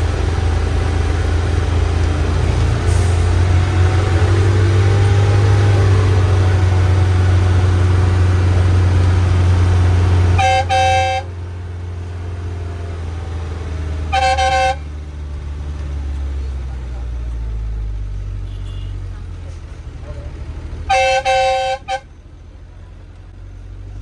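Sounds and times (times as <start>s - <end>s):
bus engine humming: 0.0s - 24.0s
vehicle horn tooting: 10.4s - 11.3s, 14.1s - 14.8s, 18.4s - 19.1s, 20.9s - 22.2s.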